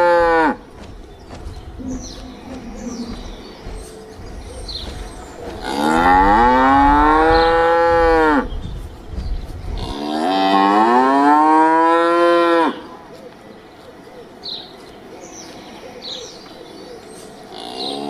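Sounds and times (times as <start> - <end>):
cow mooing: 5.6 - 8.5.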